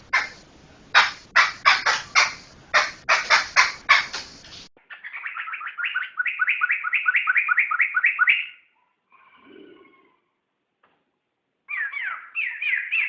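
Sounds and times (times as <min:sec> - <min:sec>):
harsh rasping bird notes: 0:00.0 - 0:00.4, 0:01.0 - 0:08.6
repeated whistled bird notes: 0:04.9 - 0:08.7, 0:11.7 - 0:13.0.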